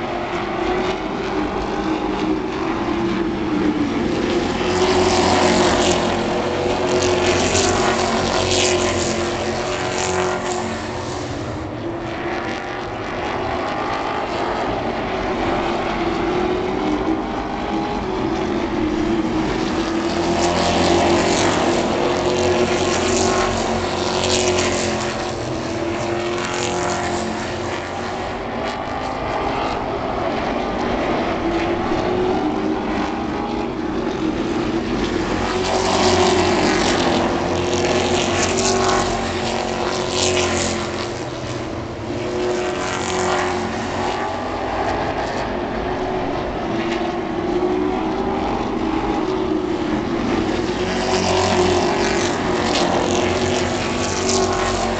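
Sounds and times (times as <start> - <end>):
racing truck engines: 0.0 - 54.9.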